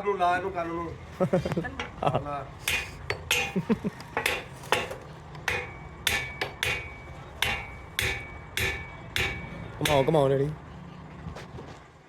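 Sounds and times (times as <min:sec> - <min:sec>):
hammer striking metal: 0:01.8 - 0:10.6.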